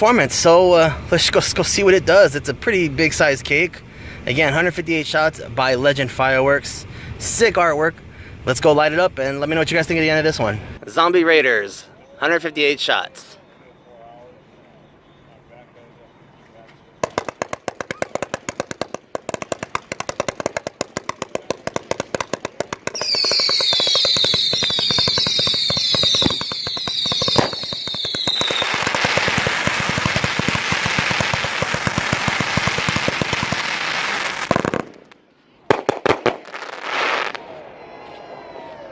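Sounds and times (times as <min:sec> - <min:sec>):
firework launch thumps: 0:17.0 - 0:33.8
firework hissing crackling barrage: 0:17.0 - 0:37.6
firework whistles falling in pitch: 0:22.8 - 0:34.9.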